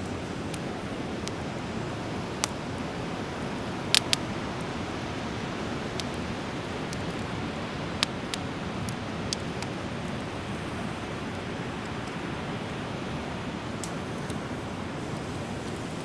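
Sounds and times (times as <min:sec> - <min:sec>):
fire crackling and popping: 0:00.0 - 0:16.0
fire hissing: 0:00.0 - 0:16.0.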